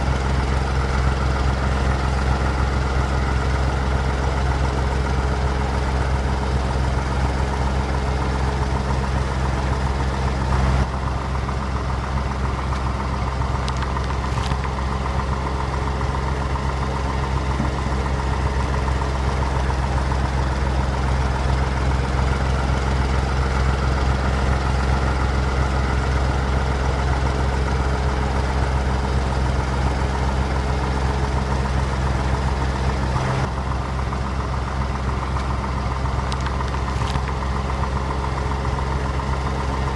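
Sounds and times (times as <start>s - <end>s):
vehicle engine idling: 0.0s - 39.9s.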